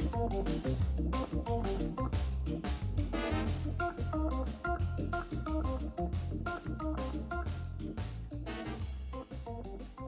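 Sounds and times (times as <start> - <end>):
bass line: 0.0 - 10.0
keyboard chords: 0.0 - 10.0.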